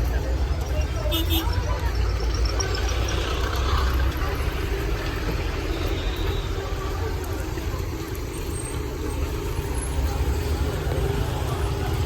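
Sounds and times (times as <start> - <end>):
street noise: 0.0 - 12.0
vehicle engine rumbling: 0.0 - 12.0.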